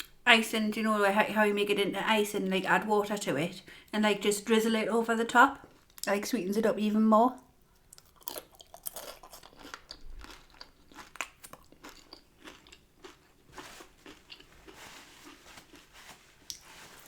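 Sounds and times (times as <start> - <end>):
person chewing crunchy taco: 7.8 - 16.6.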